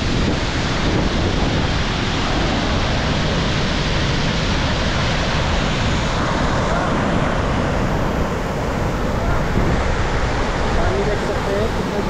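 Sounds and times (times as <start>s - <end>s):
loud rush of water: 0.0s - 12.0s.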